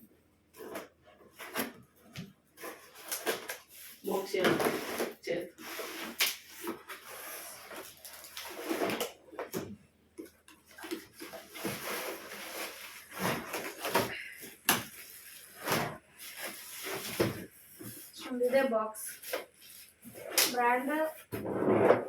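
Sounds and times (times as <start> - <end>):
packaging rustling: 2.6 - 9.2.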